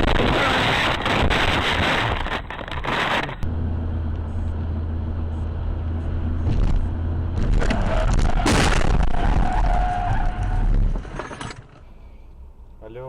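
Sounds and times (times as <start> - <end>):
road and engine noise: 0.0 - 13.0
low engine drone: 0.4 - 9.2.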